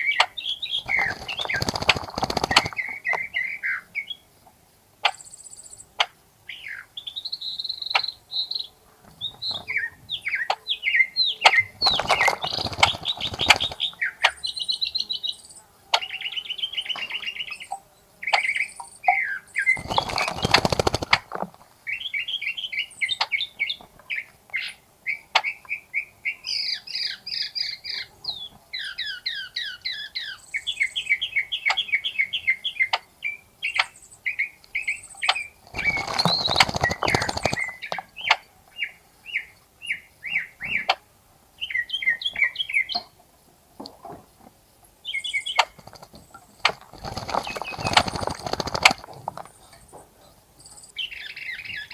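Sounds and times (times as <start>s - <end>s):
songbirds singing and chirping: 0.0s - 51.9s
birds splashing and flapping wings: 0.8s - 3.3s, 11.7s - 14.0s, 19.6s - 21.7s, 35.5s - 38.1s, 45.6s - 49.8s.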